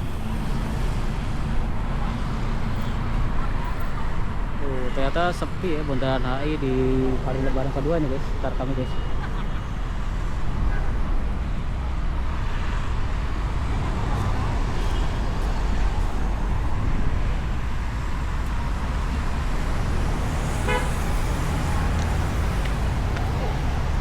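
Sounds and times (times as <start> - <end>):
road traffic rumbling: 0.0 - 24.0
vehicle horn honk: 20.6 - 21.0.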